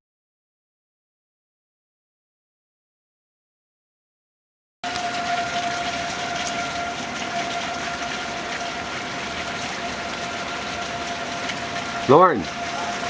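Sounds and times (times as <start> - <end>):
constant whine: 4.8 - 13.0.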